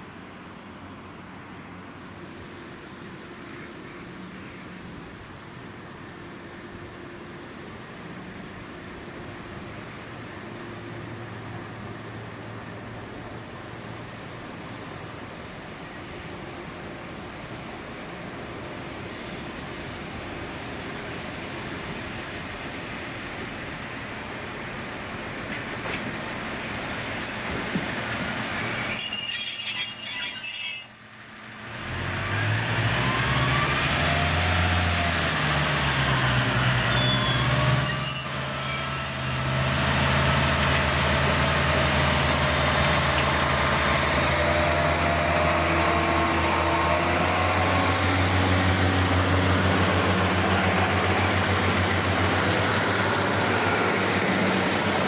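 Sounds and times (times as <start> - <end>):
diesel train engine running: 0.0 - 29.0, 31.0 - 55.0
train wheel squeals: 12.1 - 20.3, 22.9 - 24.5, 26.8 - 31.2, 36.6 - 39.8, 49.5 - 55.0.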